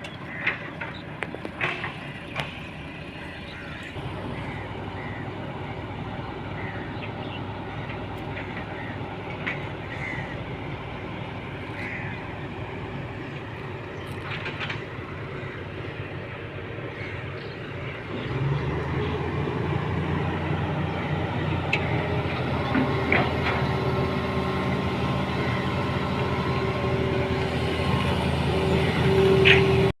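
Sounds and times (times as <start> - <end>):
construction vehicle engine running: 0.0 - 30.0.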